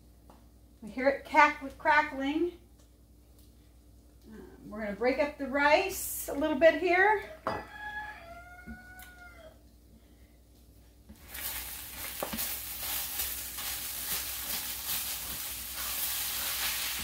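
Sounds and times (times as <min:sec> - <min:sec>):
rice sizzling in hot oil: 0:11.1 - 0:17.0.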